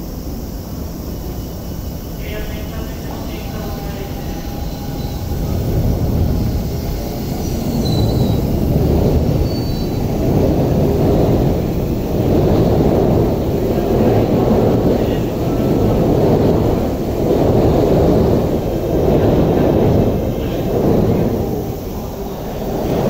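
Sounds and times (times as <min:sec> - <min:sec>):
train wheels rumbling on rails: 0:00.0 - 0:23.0
faint high wheel squeals: 0:02.8 - 0:08.6, 0:09.3 - 0:10.1.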